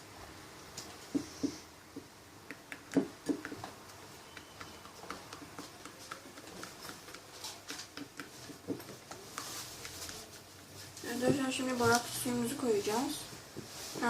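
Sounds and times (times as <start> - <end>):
stirrer tapping against bowl: 1.2 - 3.7, 4.3 - 10.3
slime being stirred in a bowl: 4.2 - 14.0.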